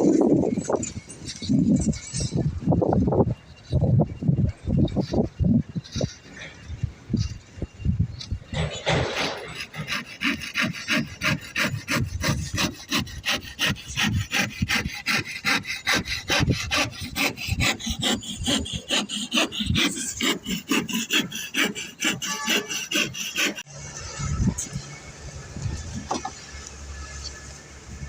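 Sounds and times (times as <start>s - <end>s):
hand saw cutting wood: 8.5s - 23.7s.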